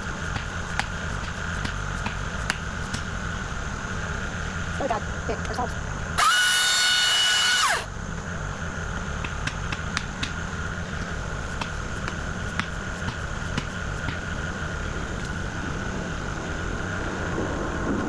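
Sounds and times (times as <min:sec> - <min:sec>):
low engine rumble: 0:00.0 - 0:18.0
small motor whining: 0:06.2 - 0:07.9.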